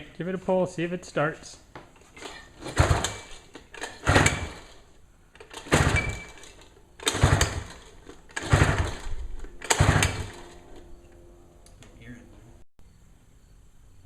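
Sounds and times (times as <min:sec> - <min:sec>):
outboard engine pull-start cranking: 0:02.2 - 0:04.8, 0:05.4 - 0:10.9.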